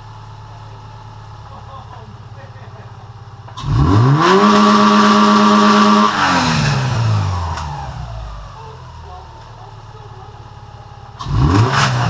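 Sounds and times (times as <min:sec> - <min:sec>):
car engine revving: 0:03.1 - 0:12.0.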